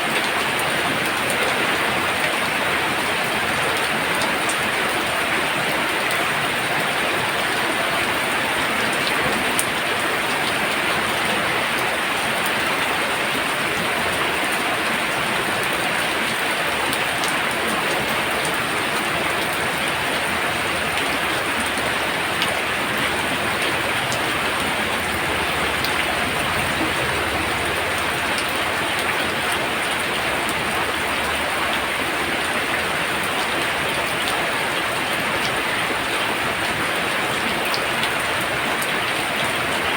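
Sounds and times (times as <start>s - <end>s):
faint raindrop ticks: 15.6s - 36.8s
heavy rain hissing: 17.4s - 35.3s.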